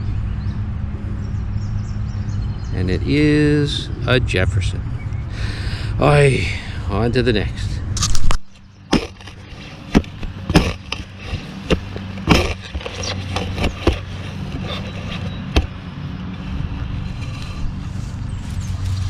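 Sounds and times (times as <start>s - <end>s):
steady low hum: 0.0s - 19.0s
short scrapes and knocks: 8.0s - 15.8s.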